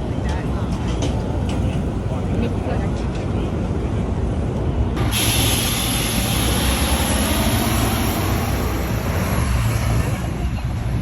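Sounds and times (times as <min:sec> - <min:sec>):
city traffic rumble: 0:00.0 - 0:11.0
loud high hiss with whistling: 0:05.0 - 0:10.3.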